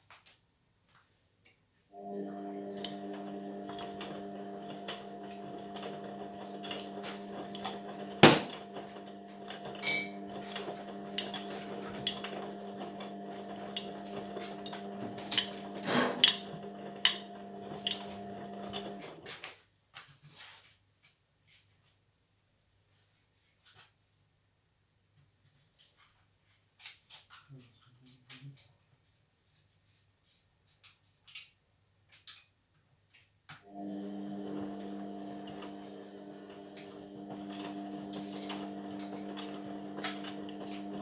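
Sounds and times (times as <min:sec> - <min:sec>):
washing machine hum: 0:02.0 - 0:19.3, 0:33.7 - 0:41.0.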